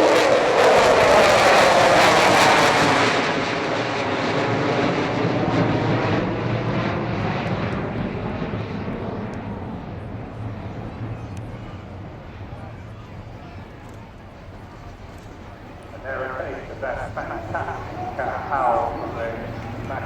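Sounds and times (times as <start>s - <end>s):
jet engines roaring past: 0.0s - 20.0s.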